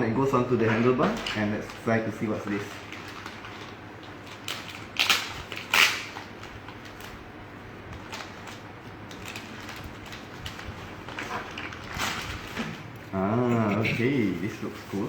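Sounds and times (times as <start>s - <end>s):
packaging rustling: 0.6s - 12.9s.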